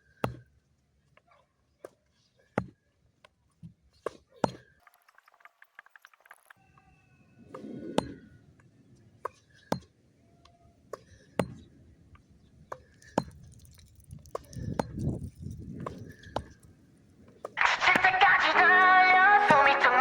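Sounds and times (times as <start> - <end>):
tennis balls struck by racquets: 10.8 - 11.8, 14.5 - 20.0
tennis balls bouncing on hard court: 10.9 - 11.7, 12.7 - 18.8
wind rumbling on microphone: 13.2 - 17.4.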